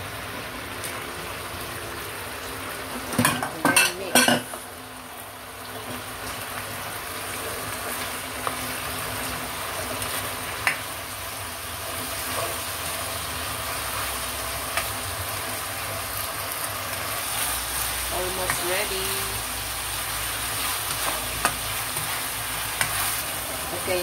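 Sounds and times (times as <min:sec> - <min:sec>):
chicken sizzling in a frying pan: 0:00.0 - 0:24.0
utensil clicking against pan: 0:22.7 - 0:23.1.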